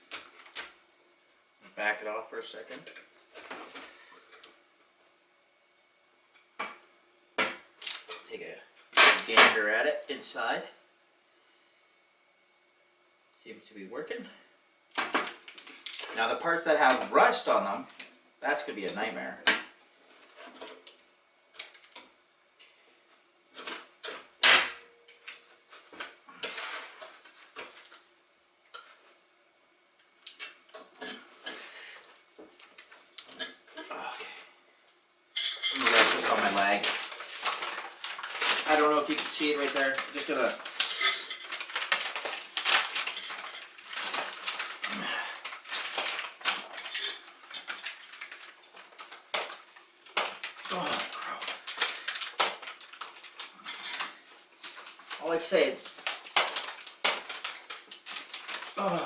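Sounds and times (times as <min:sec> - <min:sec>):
metal tools clinking and scraping: 0:35.4 - 0:37.6, 0:40.6 - 0:41.9, 0:46.7 - 0:47.8.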